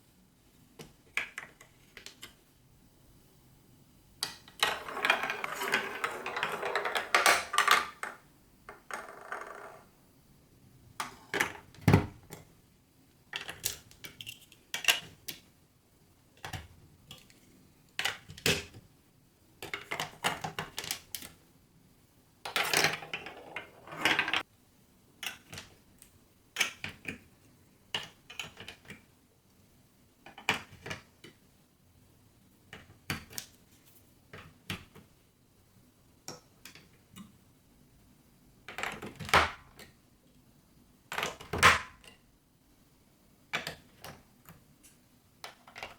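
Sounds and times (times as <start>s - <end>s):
marbles clattering down marble run: 4.6s - 9.8s.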